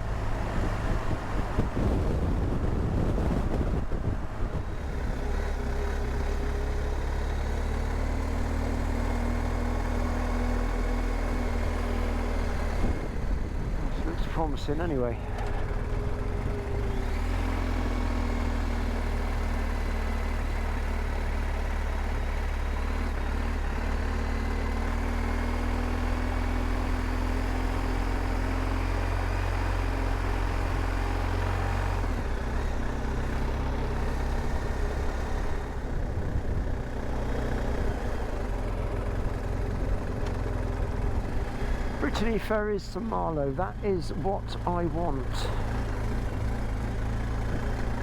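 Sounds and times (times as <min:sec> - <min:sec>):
road and wind noise: 0:00.0 - 0:48.0
motorcycle engine running: 0:15.1 - 0:48.0.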